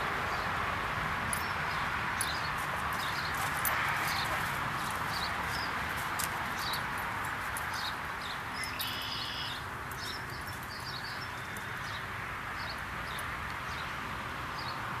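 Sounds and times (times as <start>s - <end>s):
small birds chirping: 1.3s - 14.0s
bird trill: 7.7s - 11.7s.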